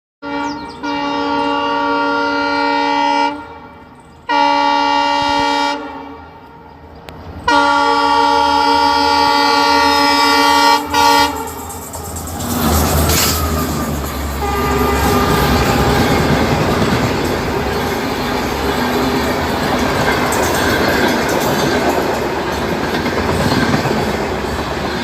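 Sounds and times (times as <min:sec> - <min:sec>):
train horn blasts: 0:00.2 - 0:06.9, 0:07.5 - 0:19.8
low rumble of train: 0:00.2 - 0:25.0.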